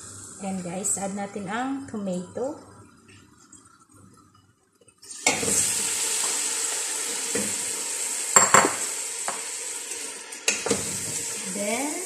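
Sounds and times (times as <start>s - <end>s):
food sizzling in hot oil: 5.0s - 12.0s.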